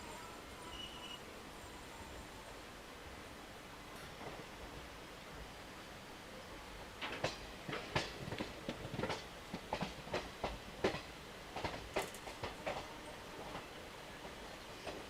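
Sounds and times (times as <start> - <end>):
train wheels clattering: 7.0 - 15.0.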